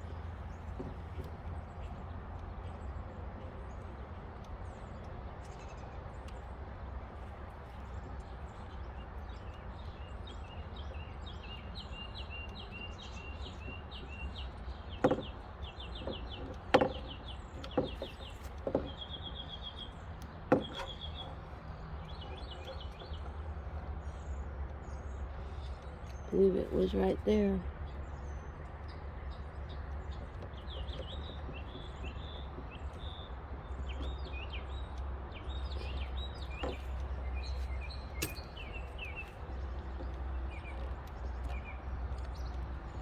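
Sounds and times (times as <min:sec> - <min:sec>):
tools knocking on car door: 0:15.0 - 0:15.4, 0:16.0 - 0:19.0, 0:20.5 - 0:21.0.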